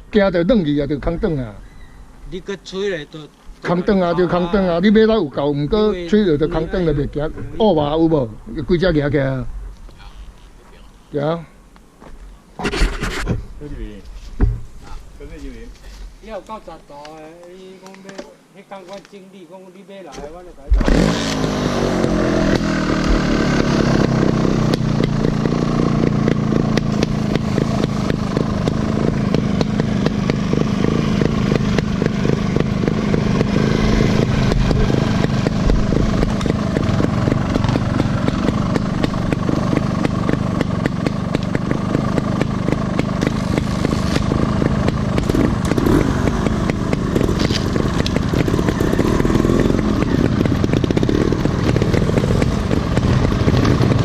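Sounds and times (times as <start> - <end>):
off-road motorcycle engine: 0.0 - 3.0, 20.7 - 54.0.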